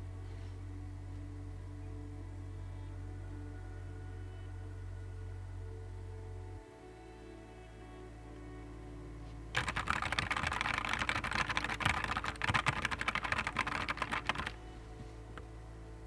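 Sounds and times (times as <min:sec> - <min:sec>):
fast typing on mechanical keyboard: 0:09.6 - 0:14.6.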